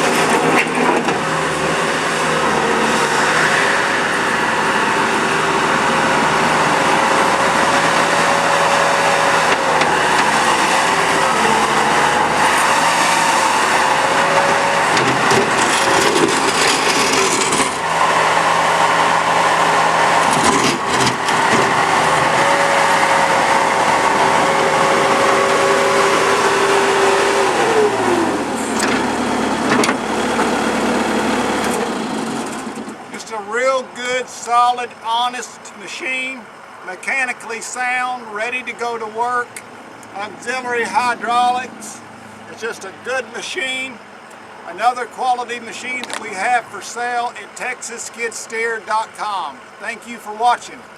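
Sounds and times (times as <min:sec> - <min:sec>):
loader diesel engine revving: 0:00.0 - 0:33.8.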